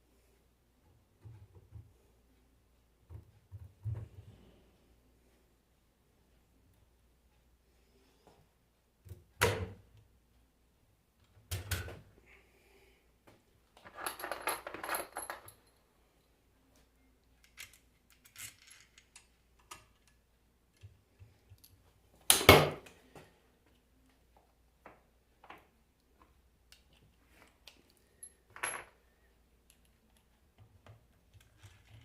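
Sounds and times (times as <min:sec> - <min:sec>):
metal tools clinking and clattering: 0:13.8 - 0:15.8.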